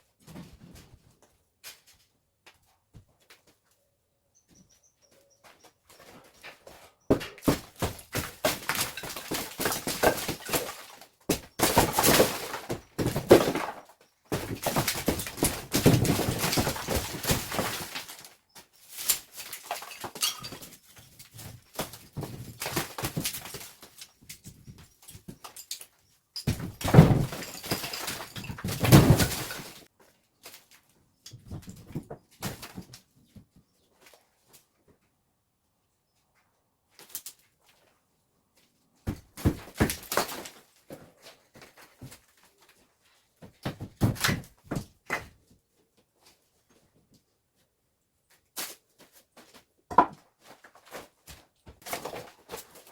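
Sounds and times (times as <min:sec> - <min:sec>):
knocks and thuds on walls: 0:07.1 - 0:18.1, 0:26.4 - 0:29.8, 0:39.0 - 0:40.4, 0:43.4 - 0:45.4, 0:49.9 - 0:50.2
crumbling debris: 0:07.4 - 0:20.7, 0:26.5 - 0:29.9.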